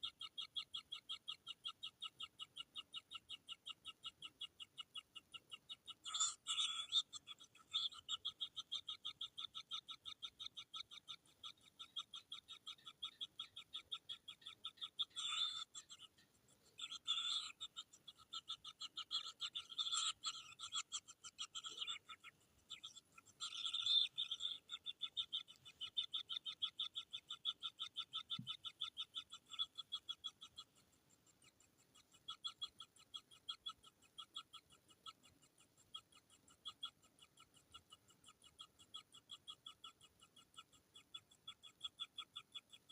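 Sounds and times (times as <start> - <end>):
nestlings begging chirps: 0.0 - 42.9.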